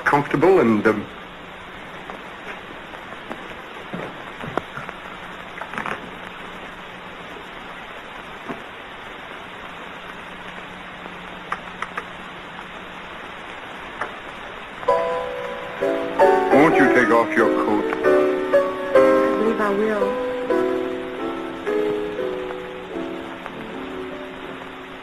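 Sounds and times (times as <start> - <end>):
film soundtrack hiss: 0.0 - 25.0
faint clicks and pops: 10.0 - 12.8, 13.4 - 14.9.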